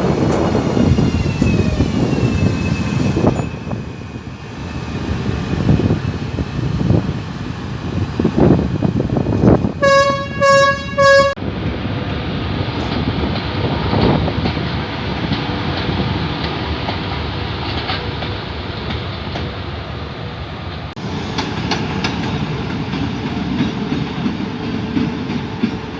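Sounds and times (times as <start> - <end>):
train rumbling on rails: 0.0 - 25.9
train horn blasts: 9.8 - 11.4.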